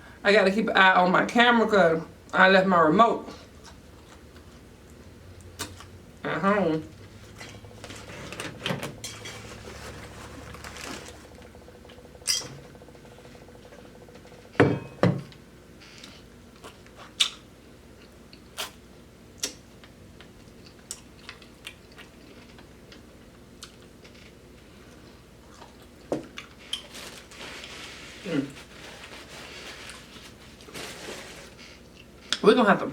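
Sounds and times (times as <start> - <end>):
chewing and crunching: 3.4 - 6.0, 15.9 - 18.8, 19.4 - 32.4.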